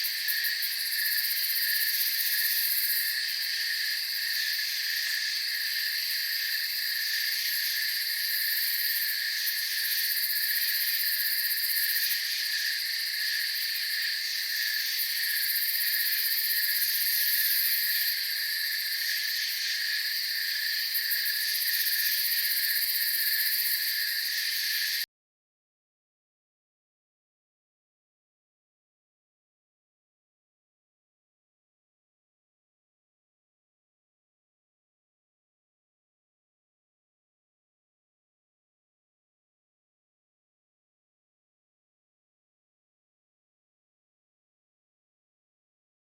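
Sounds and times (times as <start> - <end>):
crickets trilling: 0.0 - 25.1.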